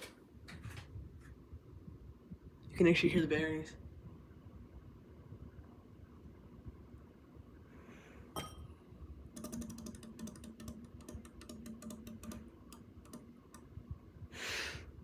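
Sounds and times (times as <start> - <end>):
faint fan hum: 0.0 - 15.0
fan bearings ticking: 9.4 - 13.9.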